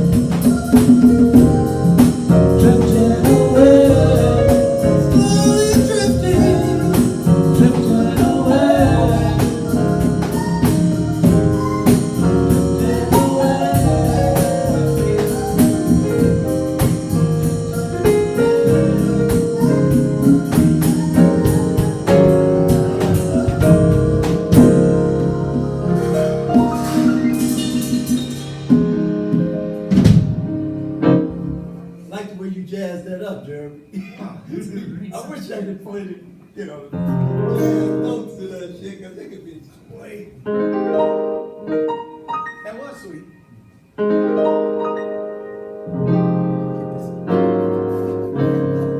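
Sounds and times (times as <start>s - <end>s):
drum kit: 0.0s - 31.8s
band playing a song: 0.0s - 32.0s
person singing: 2.3s - 11.4s, 12.4s - 15.6s.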